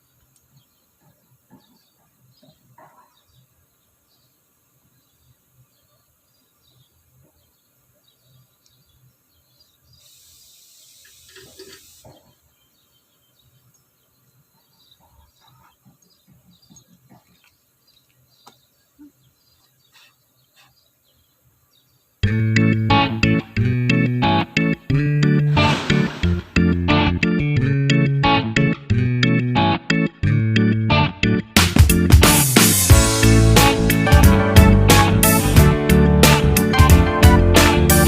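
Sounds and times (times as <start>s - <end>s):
brief hiss: 10.0s - 12.1s, 25.5s - 26.8s.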